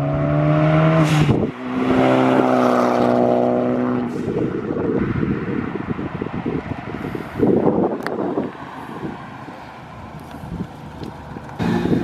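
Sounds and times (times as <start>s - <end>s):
car engine accelerating hard: 0.0s - 4.7s.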